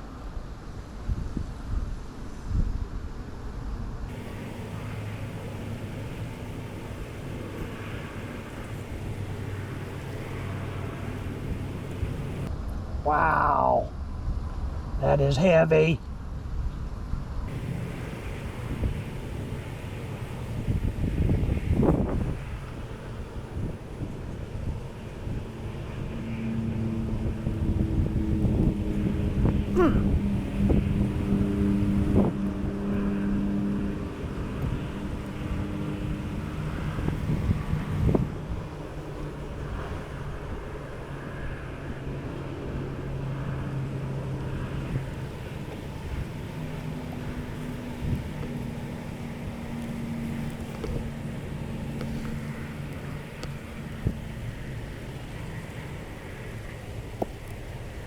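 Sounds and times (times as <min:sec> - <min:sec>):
wind rumble on microphone: 0:00.0 - 0:58.0
honeybees buzzing: 0:04.1 - 0:12.5, 0:17.5 - 0:26.8.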